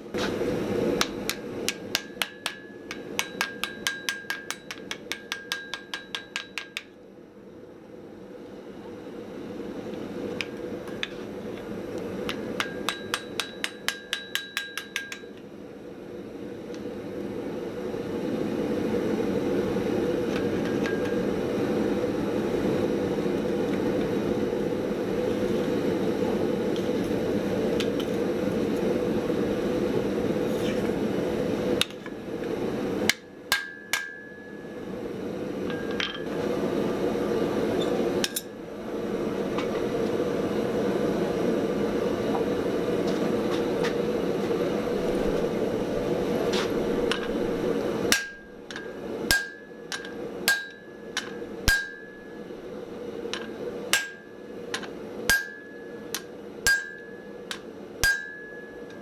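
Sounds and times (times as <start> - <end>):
hammer ringing on anvil: 1.0 - 6.9, 12.3 - 15.4, 20.6 - 21.3, 33.1 - 34.9, 35.6 - 36.3, 48.1 - 52.5, 53.4 - 59.0.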